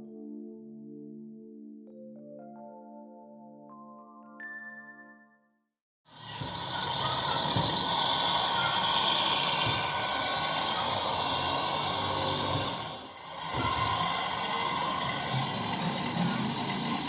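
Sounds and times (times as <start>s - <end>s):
electronic truck engine sound: 6.1s - 17.0s.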